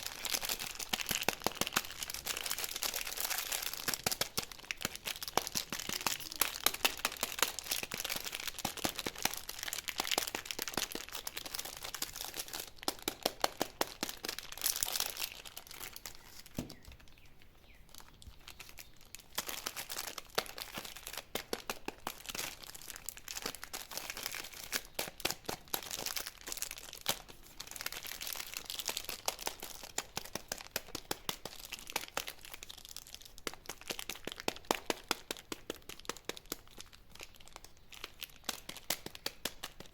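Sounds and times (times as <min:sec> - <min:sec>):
candy wrappers crinkling: 0:00.0 - 0:39.9.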